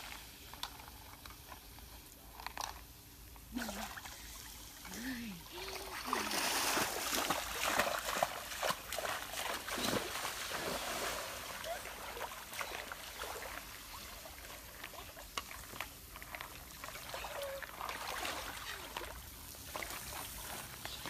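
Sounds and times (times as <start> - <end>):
water splashing and sloshing: 3.4 - 21.0.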